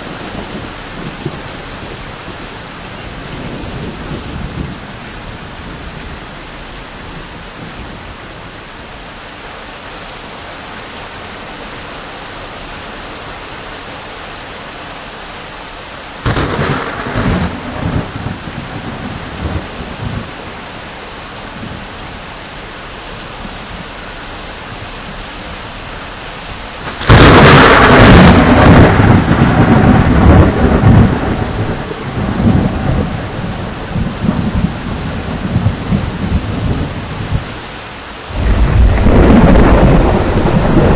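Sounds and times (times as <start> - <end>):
steady rain: 0.0 - 40.9
thunderclaps: 16.2 - 20.3, 26.8 - 37.5, 38.3 - 40.9.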